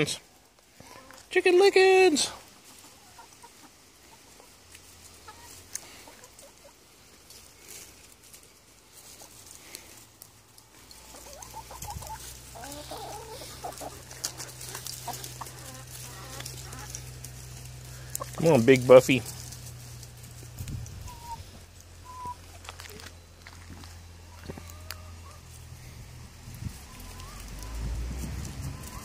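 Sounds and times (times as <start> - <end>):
chickens clucking softly: 2.3 - 19.5, 20.6 - 23.1, 24.2 - 25.6, 26.6 - 29.0.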